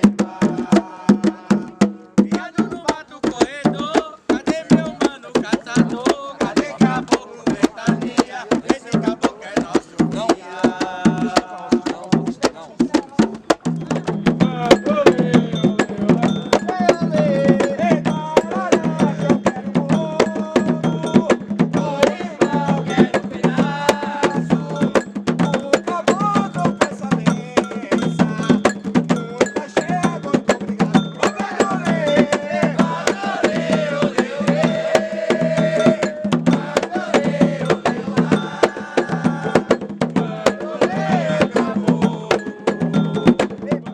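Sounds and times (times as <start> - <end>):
hand drums: 0.0 - 43.9
voices singing a chant: 0.0 - 43.9
struck bell: 13.7 - 23.7, 24.4 - 34.9, 41.2 - 43.9.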